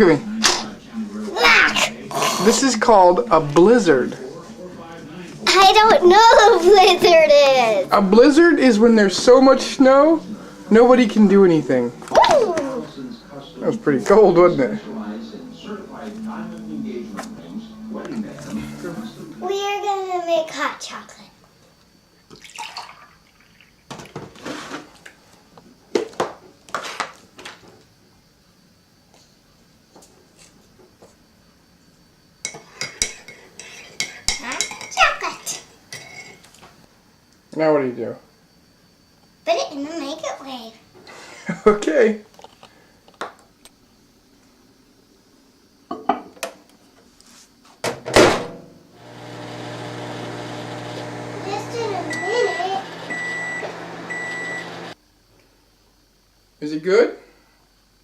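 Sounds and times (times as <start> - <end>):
microwave humming: 48.9 - 55.0.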